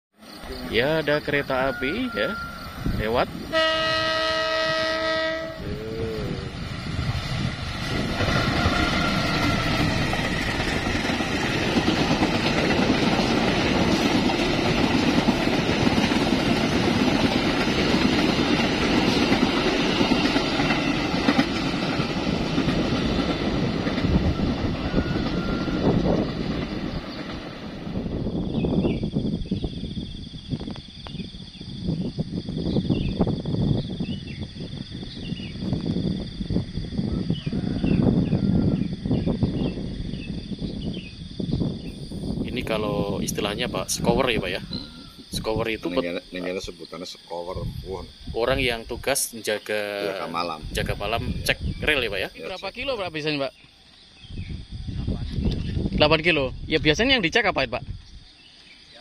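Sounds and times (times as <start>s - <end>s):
train horn: 3.5s - 6.3s, 8.3s - 10.0s, 24.2s - 26.1s
train wheels on rails: 5.4s - 29.4s.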